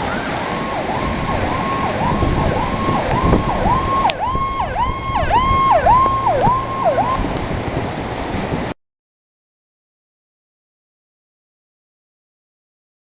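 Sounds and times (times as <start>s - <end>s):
electronic siren falling sweeps: 0.0s - 7.5s
steady rushing noise: 0.0s - 8.8s.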